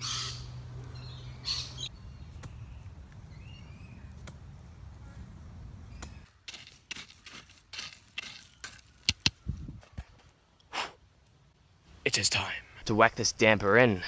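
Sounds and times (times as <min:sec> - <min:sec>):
harsh hissy bird calls: 0:00.0 - 0:01.9.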